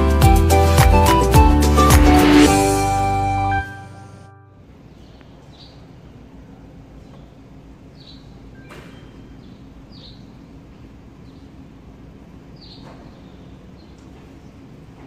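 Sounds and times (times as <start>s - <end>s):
small birds chirping: 4.9s - 14.9s.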